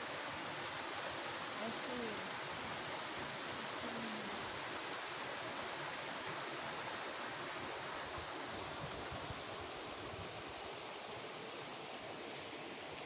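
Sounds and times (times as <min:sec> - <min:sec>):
flowing water rushing: 0:00.0 - 0:13.0.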